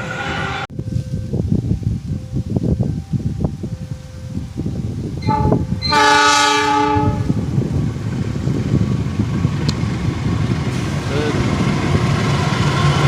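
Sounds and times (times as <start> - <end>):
train rumbling: 0.0 - 13.0
locomotive horn: 5.2 - 7.4.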